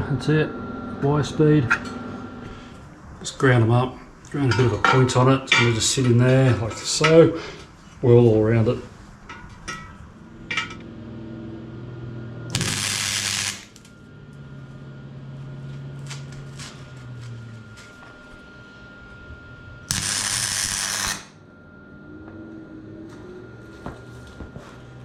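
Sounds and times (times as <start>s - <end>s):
low steady hum: 0.0s - 25.0s
welder crackling sizzle: 12.5s - 13.9s, 19.9s - 21.4s.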